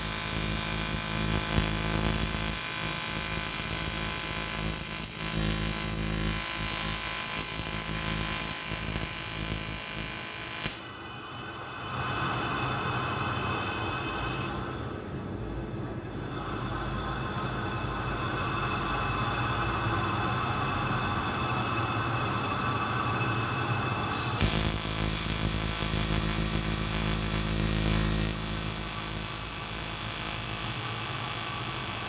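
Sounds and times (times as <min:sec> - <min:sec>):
welding arc buzzing: 0:00.0 - 0:14.6, 0:24.1 - 0:32.0.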